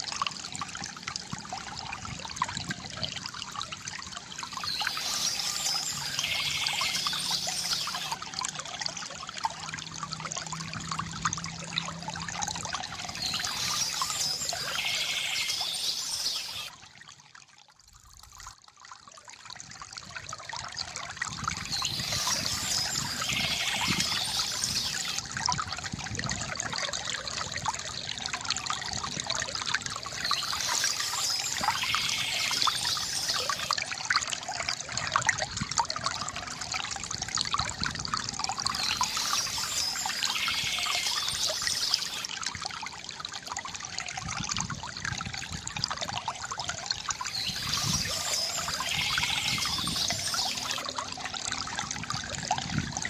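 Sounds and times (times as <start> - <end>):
water trickling from fountain: 0.0 - 53.0
high chirping: 4.5 - 8.2, 13.1 - 16.7, 21.7 - 25.2, 30.1 - 33.7, 47.3 - 50.8.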